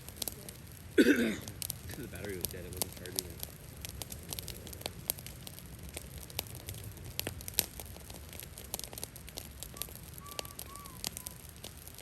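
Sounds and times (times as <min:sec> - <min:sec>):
brush fire crackling and popping: 0:00.0 - 0:12.0
faint short whistle: 0:09.8 - 0:11.4.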